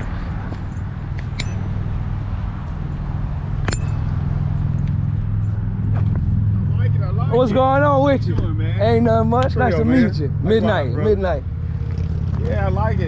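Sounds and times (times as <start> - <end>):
light metallic clinks: 0.5 - 1.8, 3.6 - 5.6.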